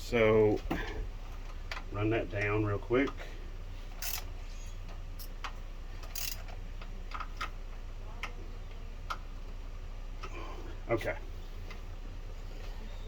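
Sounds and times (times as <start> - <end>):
steady low hum: 0.0 - 13.0
socket ratchet clicking: 4.0 - 4.3, 5.2 - 6.5.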